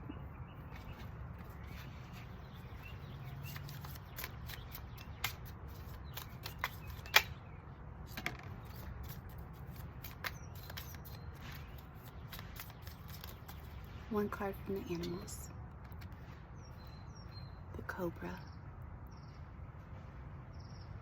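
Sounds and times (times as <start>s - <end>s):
cards shuffling snaps and clicks: 0.7s - 7.4s, 8.1s - 13.8s.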